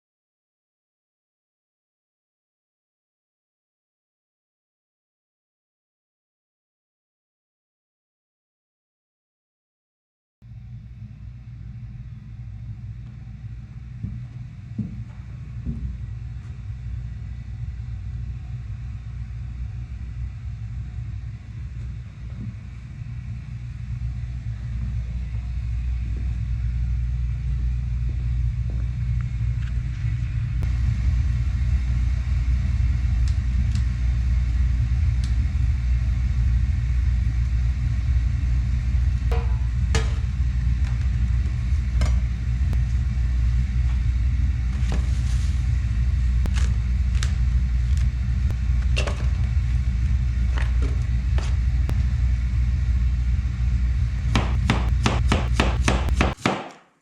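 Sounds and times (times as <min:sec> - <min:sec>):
steady low rumble: 0:10.4 - 0:56.2.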